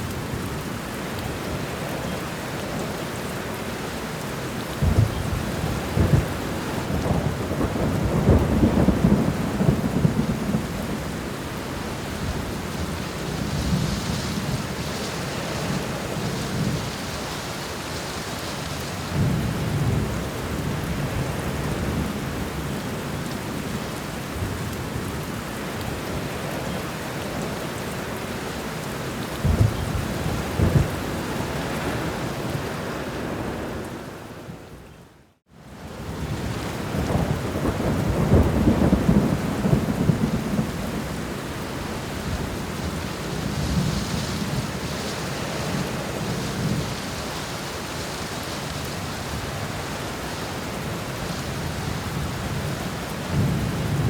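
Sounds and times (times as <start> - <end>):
heavy rain: 0.0 - 54.0
rolling thunder: 4.7 - 11.3, 29.3 - 32.6, 36.1 - 47.0, 51.2 - 54.0.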